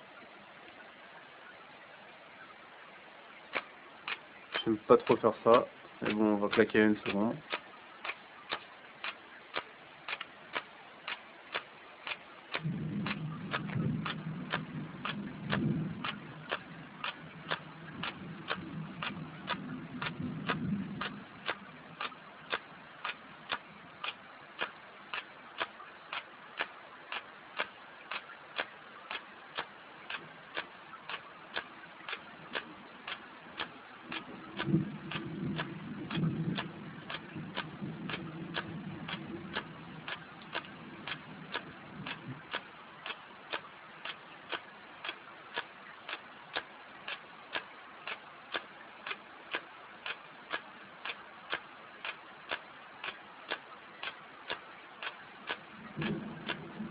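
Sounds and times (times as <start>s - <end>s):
low rumble: 12.5s - 24.0s, 32.3s - 42.6s, 55.6s - 56.9s.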